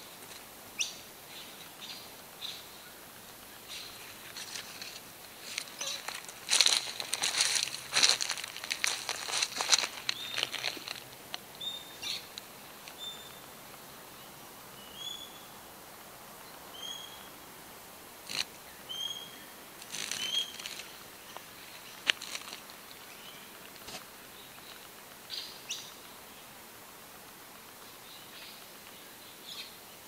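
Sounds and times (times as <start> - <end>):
steady hiss: 0.0 - 30.0
bird chirping: 11.6 - 12.3, 13.0 - 13.5, 14.2 - 15.6, 16.7 - 17.3, 18.7 - 19.5.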